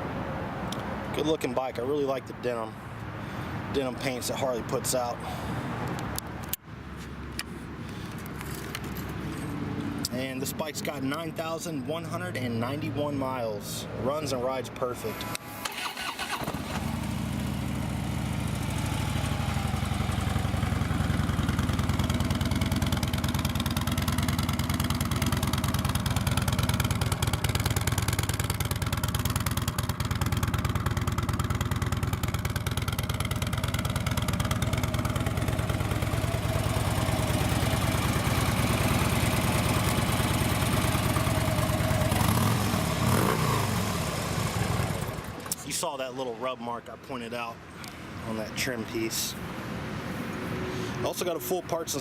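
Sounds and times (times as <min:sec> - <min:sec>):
motorcycle engine idling: 0:16.0 - 0:45.4.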